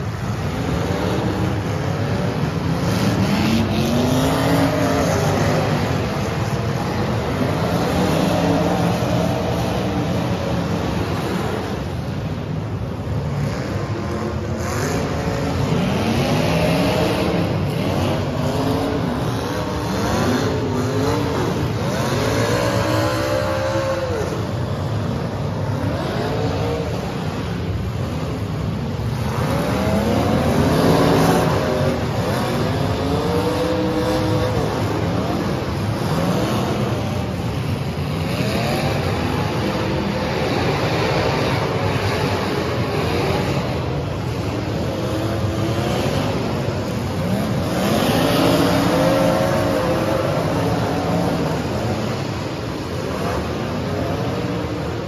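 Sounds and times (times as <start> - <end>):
car engines revving hard: 0.0 - 55.0.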